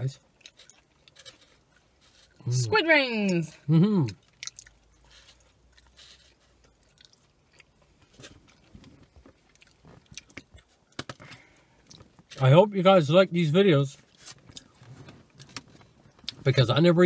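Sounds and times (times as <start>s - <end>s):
chewing crunchy fried food: 0.2s - 2.6s, 4.0s - 12.4s, 14.0s - 16.5s.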